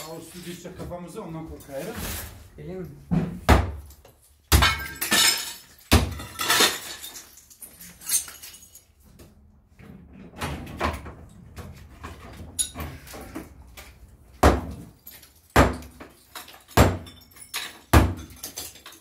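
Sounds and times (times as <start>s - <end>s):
clattering debris: 3.8s - 9.0s, 14.8s - 19.0s.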